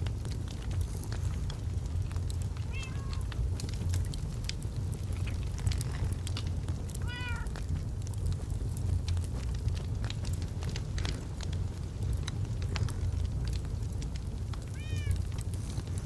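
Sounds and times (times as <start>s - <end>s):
log fire crackling: 0.0s - 16.0s
cat meowing: 2.7s - 3.2s, 7.0s - 7.5s, 14.8s - 15.2s.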